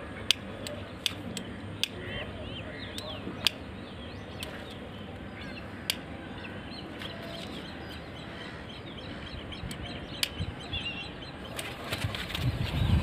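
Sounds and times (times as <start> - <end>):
birds chirping: 0.0 - 13.0
outdoor background noise: 0.0 - 13.0
sharp clicks: 0.3 - 2.0, 2.9 - 3.7, 4.4 - 4.8, 9.6 - 10.5.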